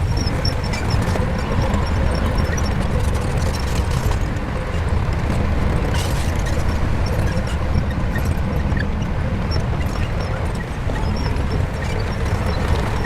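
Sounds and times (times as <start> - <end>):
bulldozer diesel engine rumbling: 0.0 - 13.0.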